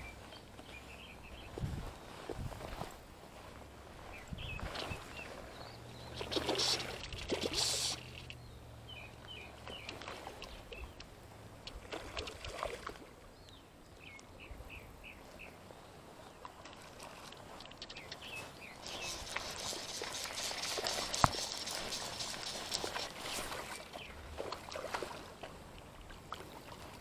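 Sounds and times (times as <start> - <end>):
microphone handling rustle: 0.7 - 3.0
small bird chirping: 4.1 - 11.0, 17.8 - 24.2.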